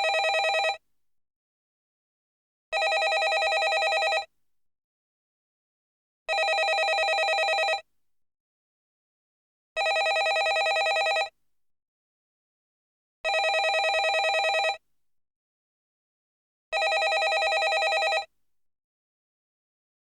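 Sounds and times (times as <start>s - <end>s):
telephone ringing: 0.0s - 0.8s, 2.8s - 4.3s, 6.3s - 7.8s, 9.8s - 11.3s, 13.3s - 14.8s, 16.8s - 18.3s.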